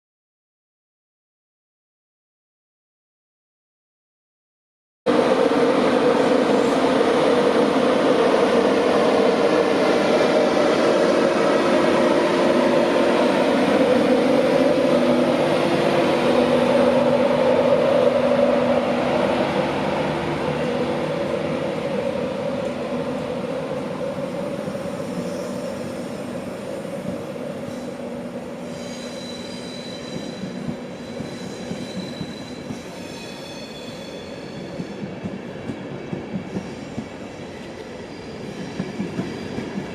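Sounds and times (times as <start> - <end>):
train running past: 5.1 - 39.9
thin high squealing: 28.6 - 34.7.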